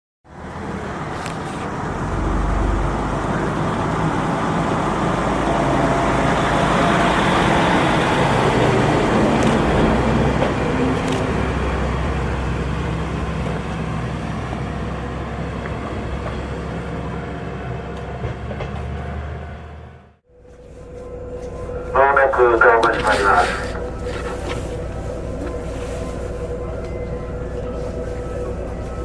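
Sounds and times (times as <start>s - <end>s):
train wheels on track: 0.3s - 19.9s
diesel engine under load: 0.3s - 29.0s.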